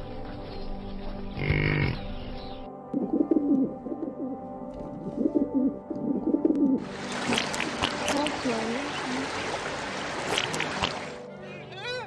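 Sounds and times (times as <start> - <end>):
bird cooing: 1.3 - 9.4.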